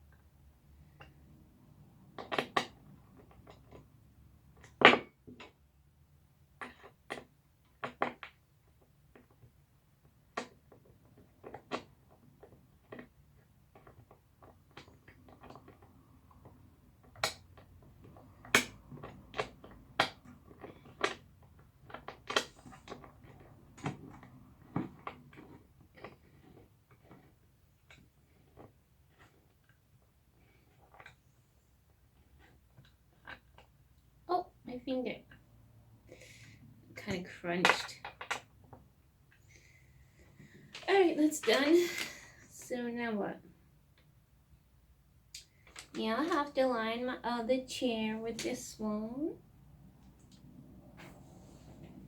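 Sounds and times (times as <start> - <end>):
chair parts knocking and clicking: 6.6 - 29.8, 36.9 - 39.4.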